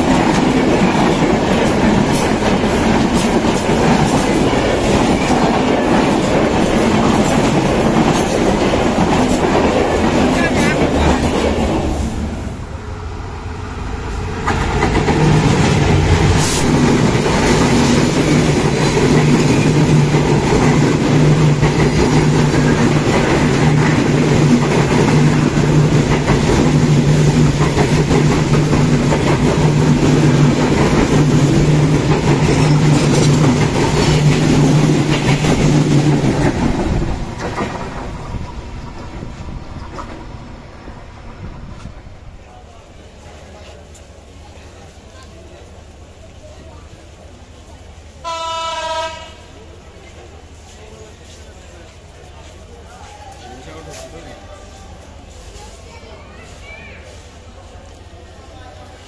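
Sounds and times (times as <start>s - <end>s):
train wheels clattering on rails: 0.0s - 12.4s, 14.0s - 42.0s.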